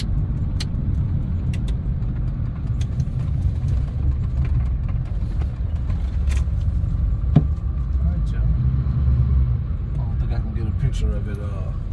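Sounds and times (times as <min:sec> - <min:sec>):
pickup truck rumble inside cab: 0:00.0 - 0:11.9.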